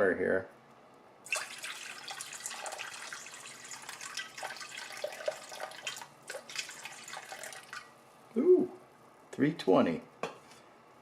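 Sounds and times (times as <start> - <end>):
water pouring into a bowl: 1.3 - 8.0.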